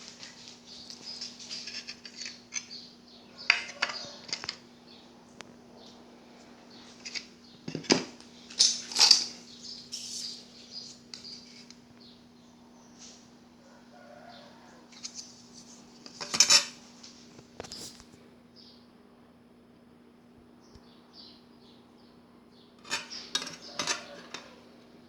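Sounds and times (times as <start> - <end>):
faint steady hum: 0.0 - 25.0
metal objects clinking: 22.8 - 24.6.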